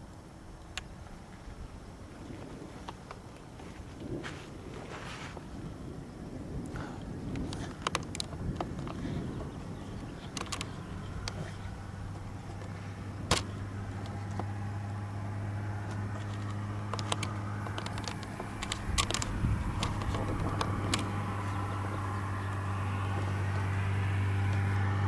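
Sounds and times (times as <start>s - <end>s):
engine idling: 8.3s - 25.0s
sharp clicks: 10.2s - 14.5s, 15.9s - 21.7s.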